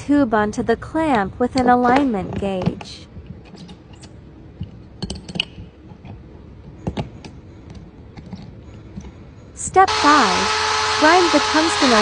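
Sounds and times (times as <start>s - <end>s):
metal parts clicking and tapping: 3.4s - 6.0s.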